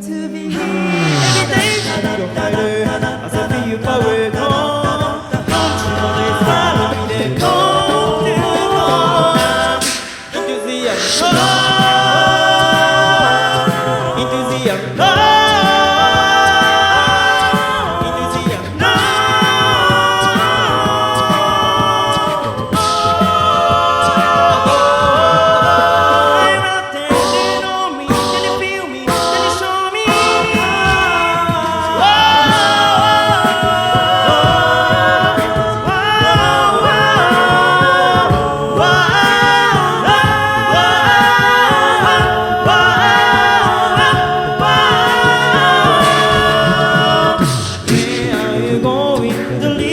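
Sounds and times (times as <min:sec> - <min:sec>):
male group singing a cappella: 0:00.0 - 0:49.9
sharp percussive hits: 0:27.1 - 0:49.6.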